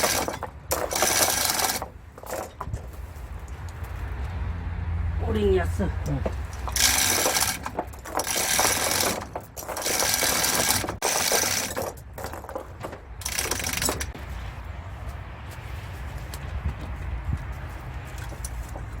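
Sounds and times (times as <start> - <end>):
mechanical workshop noise bursts: 6.5 - 12.6.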